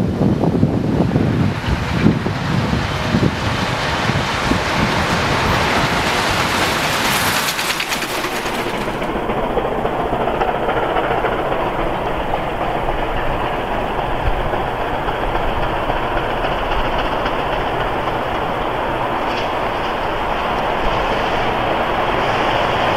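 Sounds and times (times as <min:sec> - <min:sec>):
train rumbling on rails: 0:00.0 - 0:22.9.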